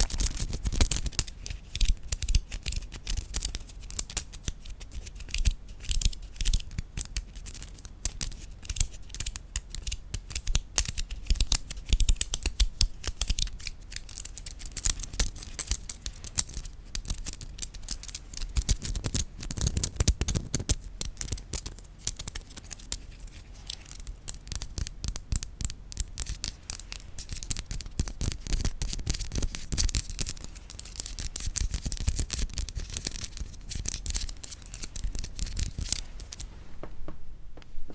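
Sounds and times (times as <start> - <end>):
soft low knocks: 36.6 - 37.9.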